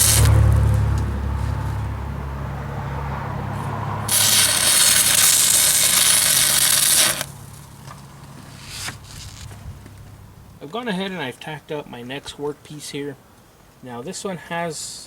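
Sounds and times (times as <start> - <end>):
welding arc crackling hiss: 0.0 - 0.5, 4.1 - 7.4
welder electrical hum: 0.0 - 1.6, 4.1 - 7.6.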